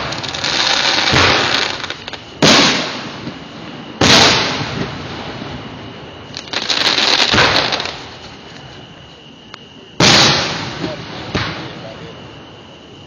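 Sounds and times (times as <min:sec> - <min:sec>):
firework shells booming: 0:00.0 - 0:08.2, 0:10.0 - 0:12.5.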